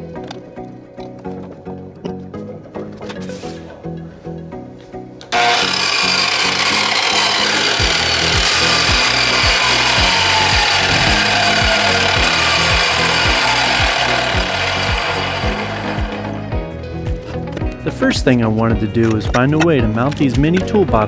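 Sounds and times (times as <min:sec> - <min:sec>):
background music with beat: 0:00.0 - 0:21.0
miter saw cutting metal: 0:05.3 - 0:16.5.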